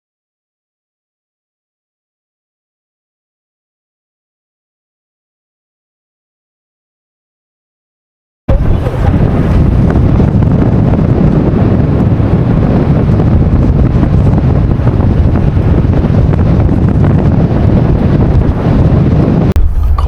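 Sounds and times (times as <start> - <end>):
wind buffeting microphone: 8.5 - 20.0.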